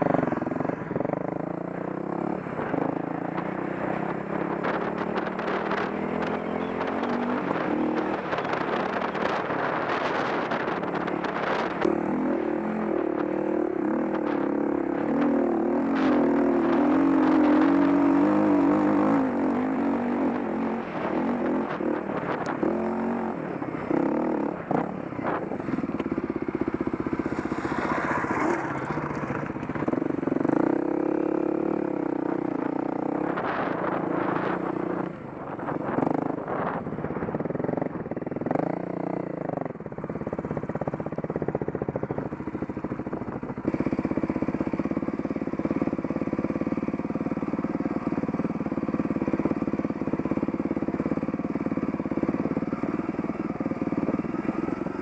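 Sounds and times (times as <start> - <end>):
dirt bike engine revving: 0.0 - 36.8.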